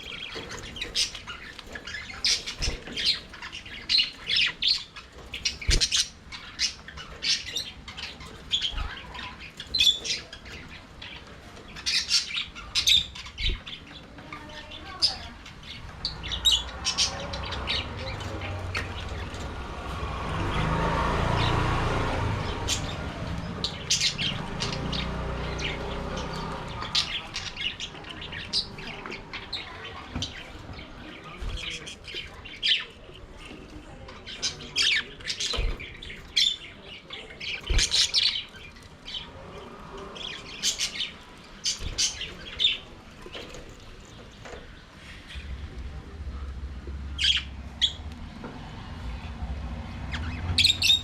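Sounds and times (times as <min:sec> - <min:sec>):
budgerigars chirping and squawking: 0:00.0 - 0:48.0, 0:49.9 - 0:51.0
low rumble: 0:45.2 - 0:50.5.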